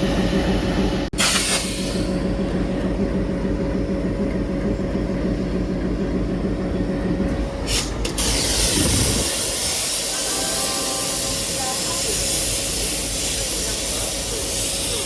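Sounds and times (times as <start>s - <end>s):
diesel locomotive idling: 0.0s - 15.0s
air pressure hissing: 1.2s - 2.1s, 7.7s - 15.0s
short air puffs: 7.7s - 10.2s.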